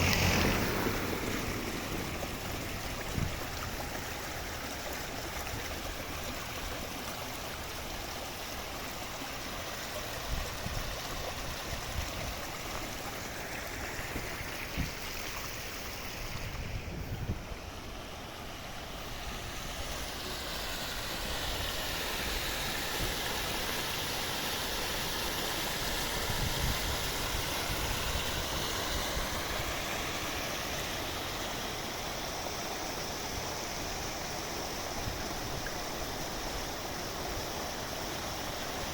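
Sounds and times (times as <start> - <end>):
low bumps: 0.0 - 4.6
river water rushing: 0.0 - 38.9.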